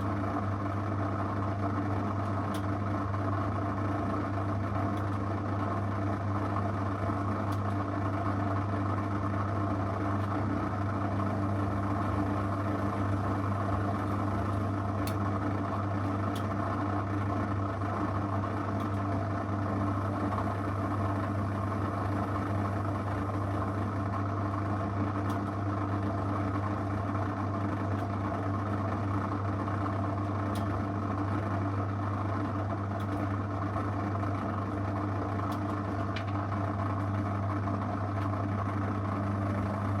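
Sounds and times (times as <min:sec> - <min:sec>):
washing machine humming: 0:00.0 - 0:40.0.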